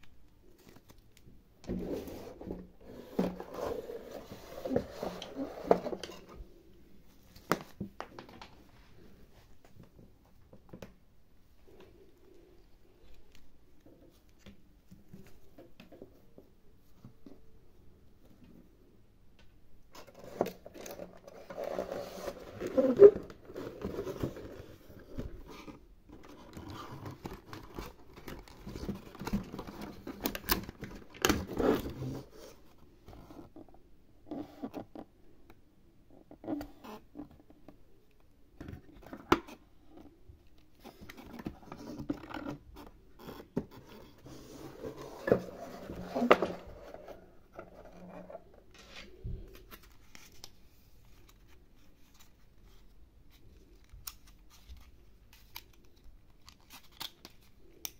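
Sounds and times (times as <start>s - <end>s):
plastic packaging handled: 20.0s - 32.7s.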